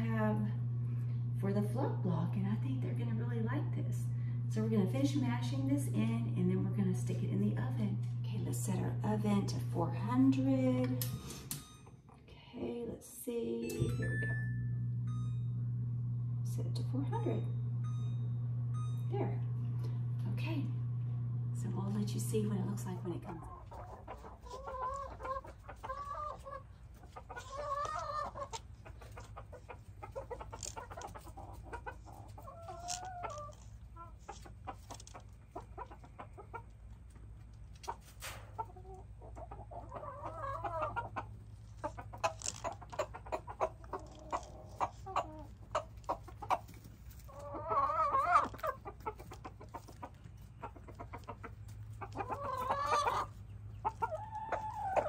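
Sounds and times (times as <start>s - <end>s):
hens clucking: 22.1s - 55.0s.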